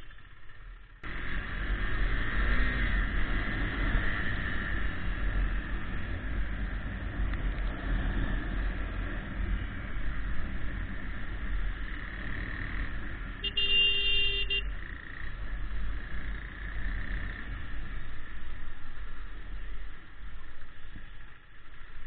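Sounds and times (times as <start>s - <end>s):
wind and road rumble: 0.0s - 22.0s
vehicle horn: 13.4s - 14.8s.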